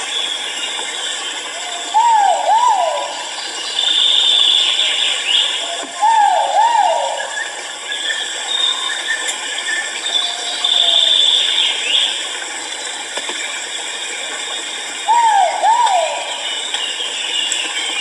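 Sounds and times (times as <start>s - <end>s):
insects droning: 0.0s - 18.0s
bird calling swooping notes: 2.0s - 3.3s, 15.1s - 16.6s.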